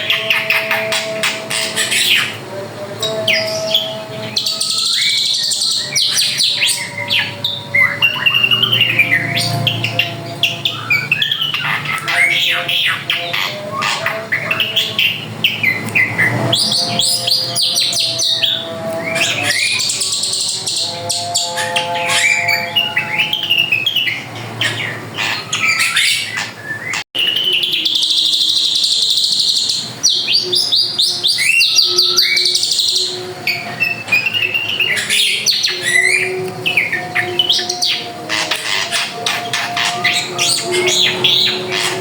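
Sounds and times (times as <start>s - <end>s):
drongo singing: 0.0s - 42.0s.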